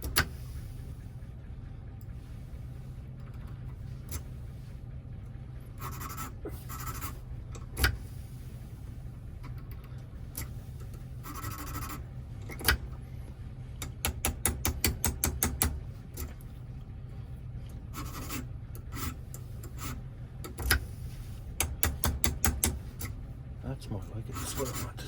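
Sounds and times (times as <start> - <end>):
steady low hum: 0.0 - 25.0
metal parts rasping: 10.3 - 12.7.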